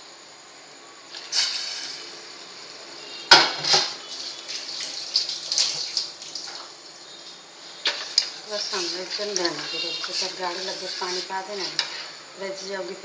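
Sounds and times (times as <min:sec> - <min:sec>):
metal utensils clattering on pot: 0:07.9 - 0:12.2.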